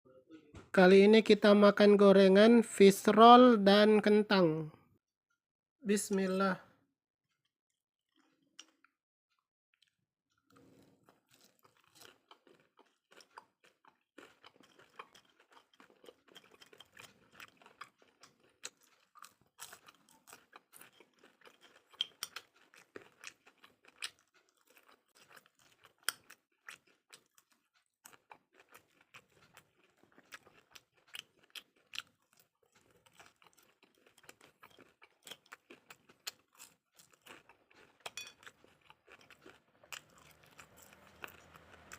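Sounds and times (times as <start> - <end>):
crunching fried snacks: 9.8 - 41.9.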